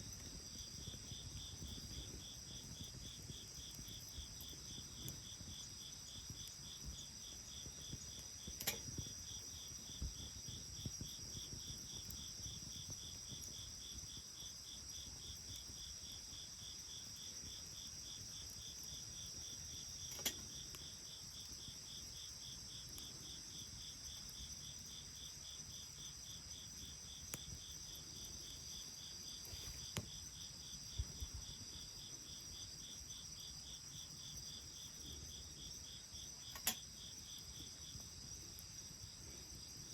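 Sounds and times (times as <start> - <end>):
bonfire crackling and popping: 0.0 - 31.4
crickets chirping: 0.0 - 39.9.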